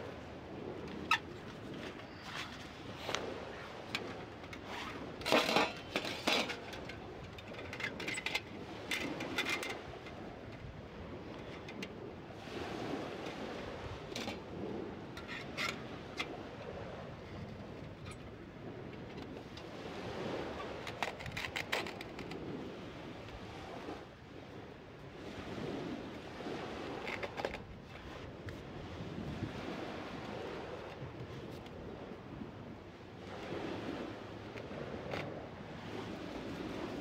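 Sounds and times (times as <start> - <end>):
waves washing on beach: 0.0 - 37.0
wind on microphone: 0.0 - 37.0.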